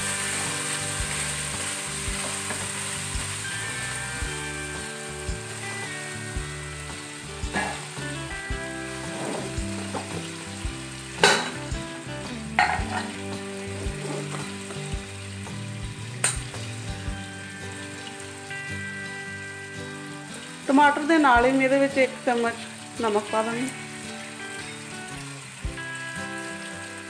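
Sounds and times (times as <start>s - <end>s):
onions and tomatoes frying in oil: 0.0s - 27.0s
sharp knocks on metal pan: 11.2s - 11.6s, 12.6s - 13.1s.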